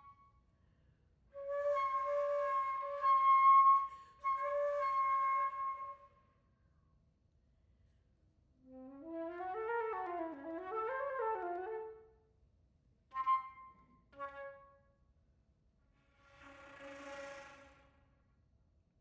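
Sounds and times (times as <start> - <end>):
solo flute playing: 1.4 - 6.1, 8.7 - 12.0, 13.1 - 14.7.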